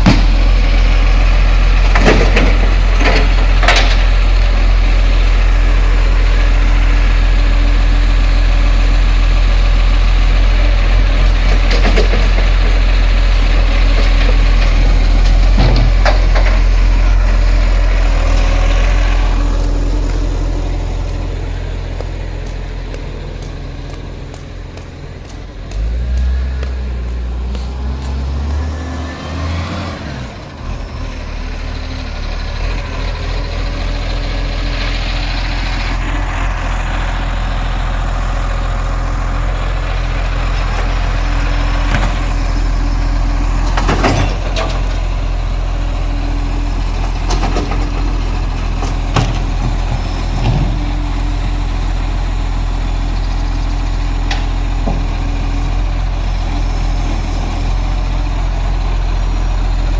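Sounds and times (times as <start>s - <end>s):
sharp knocks and clanks: 0.0s - 0.6s, 1.8s - 4.2s, 11.1s - 16.9s, 18.0s - 29.7s
garbage truck engine running: 0.0s - 59.9s.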